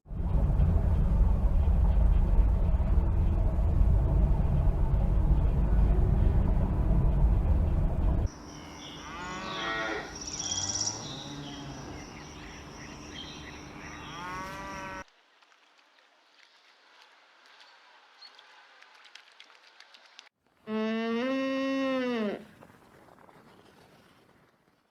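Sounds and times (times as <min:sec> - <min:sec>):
loud low rumble: 0:00.0 - 0:08.3
faint high insect-like tone: 0:08.4 - 0:15.0
cow mooing: 0:08.9 - 0:12.1, 0:14.0 - 0:15.0.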